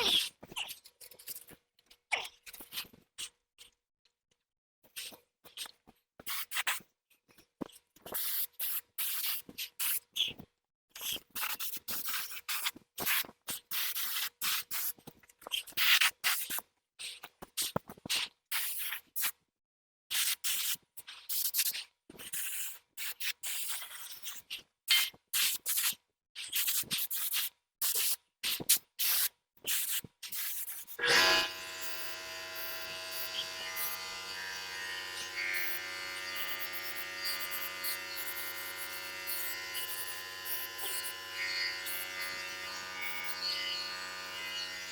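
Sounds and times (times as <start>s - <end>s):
paint sprayer hissing: 30.6s - 41.2s
steady hum: 31.0s - 44.8s.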